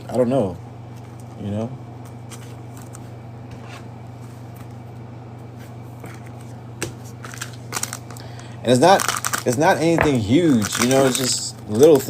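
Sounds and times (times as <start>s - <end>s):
low electrical hum: 0.0s - 12.0s
cards clicking and rustling: 8.9s - 12.0s.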